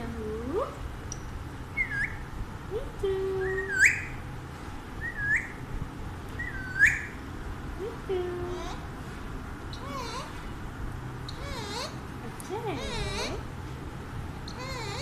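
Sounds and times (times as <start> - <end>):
parakeet whistled calls: 1.7 - 2.3, 3.4 - 4.2, 5.0 - 5.6, 6.4 - 7.2, 9.7 - 10.4, 11.3 - 12.0, 12.8 - 13.5, 14.4 - 15.0.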